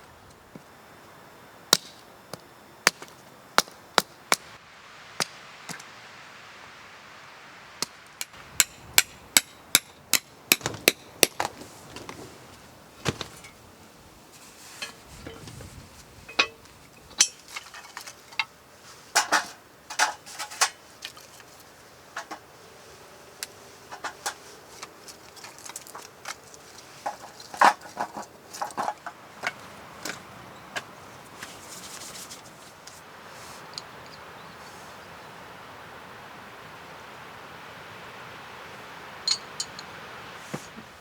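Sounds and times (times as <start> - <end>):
metal camping gear clanking: 8.6 - 22.5, 23.9 - 32.7, 39.2 - 40.9.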